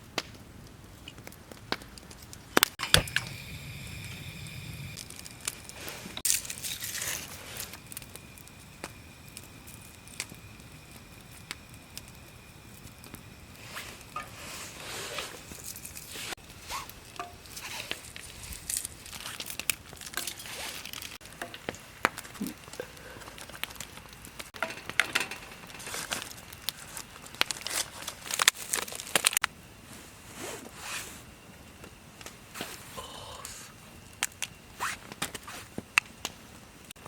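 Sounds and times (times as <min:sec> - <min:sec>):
packaging crinkling: 0:25.8 - 0:29.4.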